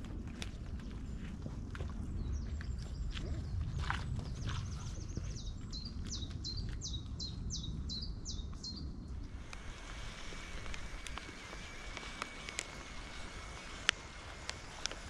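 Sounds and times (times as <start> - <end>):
low background rumble: 0.0 - 15.0
songbird trilling and whistling: 4.2 - 8.9.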